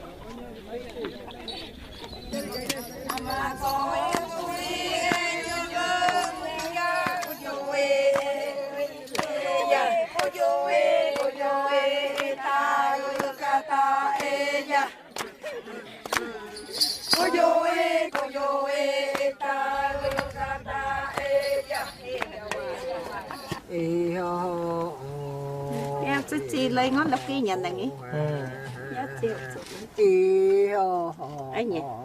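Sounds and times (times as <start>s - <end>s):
voices chanting: 0.6s - 30.6s.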